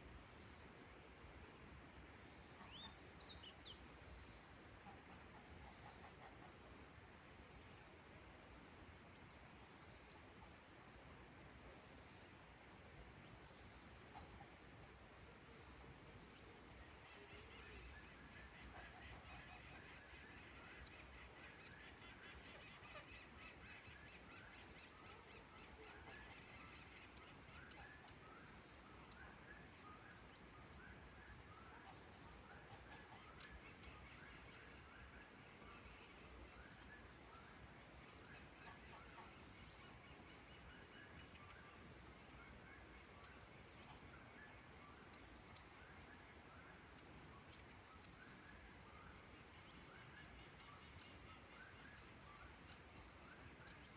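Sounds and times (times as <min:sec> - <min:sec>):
countryside hiss: 0:00.0 - 0:53.9.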